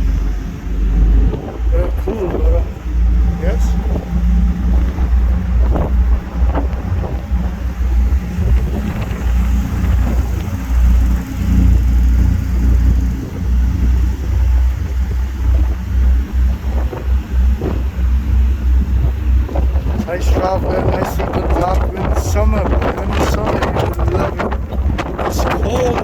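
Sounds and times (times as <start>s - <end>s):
ferry engines low rumble: 0.0s - 26.0s
wind buffeting microphone: 0.0s - 26.0s.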